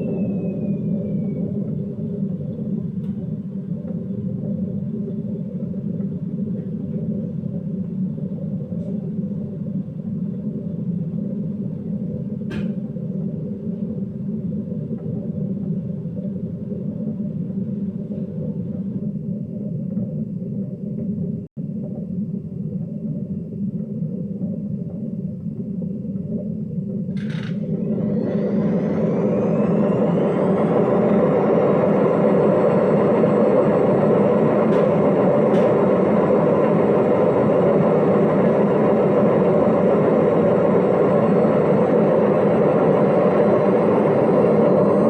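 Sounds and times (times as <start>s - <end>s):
washing machine spinning: 0.0s - 45.0s.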